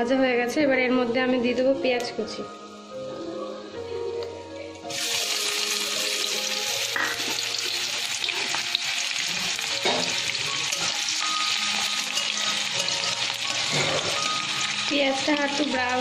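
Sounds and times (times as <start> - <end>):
frying hiss: 4.9 - 16.0
onion sizzling in hot oil: 4.9 - 16.0.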